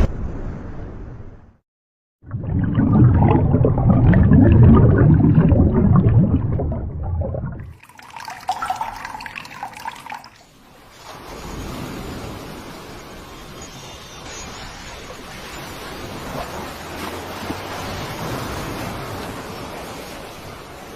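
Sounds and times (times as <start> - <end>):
running water rushing: 2.3 - 10.5.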